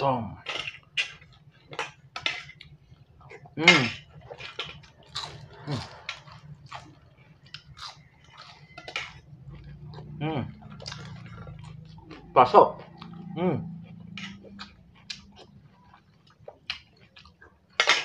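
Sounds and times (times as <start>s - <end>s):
crunchy snack being chewed: 0.4s - 18.0s.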